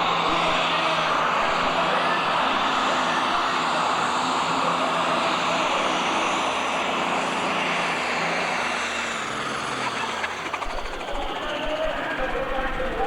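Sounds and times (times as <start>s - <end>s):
tractor engine and turbo roar: 0.0s - 13.0s.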